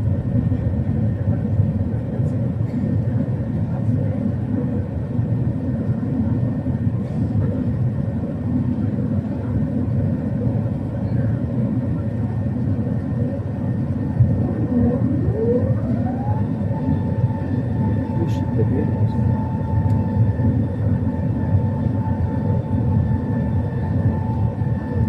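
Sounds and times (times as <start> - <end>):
aircraft engine and airflow rumble: 0.0 - 25.0
rising whine: 13.4 - 25.0.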